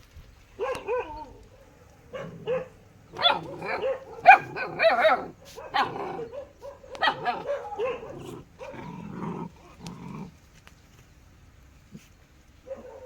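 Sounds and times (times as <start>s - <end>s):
dog barking: 0.6s - 8.9s, 12.6s - 13.0s
dog growling: 2.1s - 10.4s.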